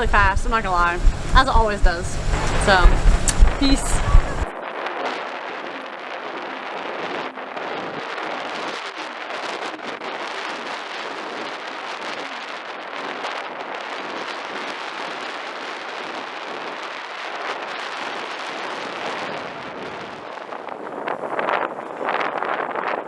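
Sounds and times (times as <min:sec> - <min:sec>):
wind across microphone: 0:00.0 - 0:04.6, 0:07.0 - 0:23.0.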